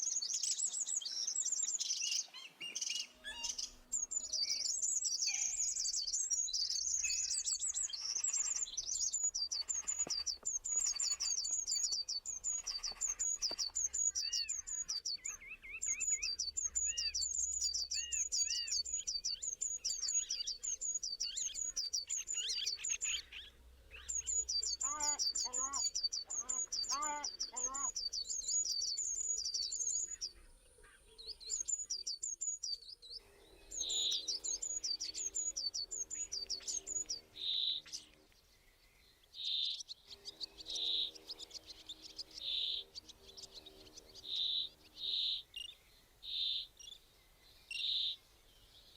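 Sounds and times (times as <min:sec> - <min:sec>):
lower bird chirps: 0:00.0 - 0:48.9
bird rapid high chirps: 0:24.1 - 0:30.2.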